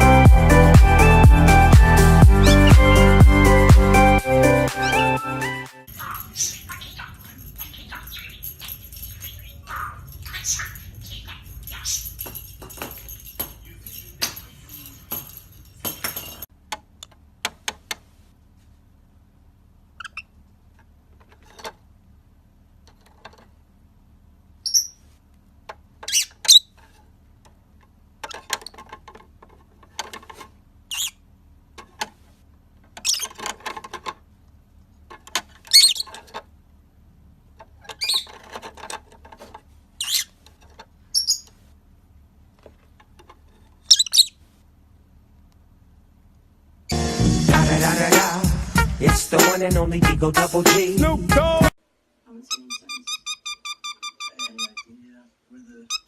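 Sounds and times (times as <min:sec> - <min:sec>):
parrot squawking: 0:02.3 - 0:03.2, 0:04.5 - 0:12.2, 0:20.0 - 0:20.3, 0:24.6 - 0:25.0, 0:26.0 - 0:26.7, 0:30.9 - 0:31.2, 0:33.0 - 0:33.4, 0:35.7 - 0:36.2, 0:37.9 - 0:38.4, 0:40.0 - 0:40.4, 0:41.1 - 0:41.5, 0:43.9 - 0:44.4, 0:52.4 - 0:55.0, 0:55.8 - 0:56.0
small clicks and rustling: 0:22.8 - 0:23.6, 0:26.7 - 0:30.6, 0:37.5 - 0:41.8, 0:42.5 - 0:44.7.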